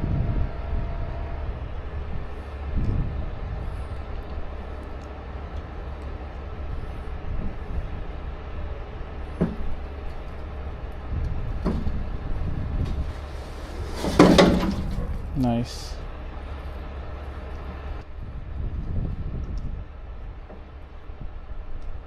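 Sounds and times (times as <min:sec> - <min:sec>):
heavy truck engine running: 0:00.0 - 0:18.0
clattering metal bang: 0:11.6 - 0:15.5.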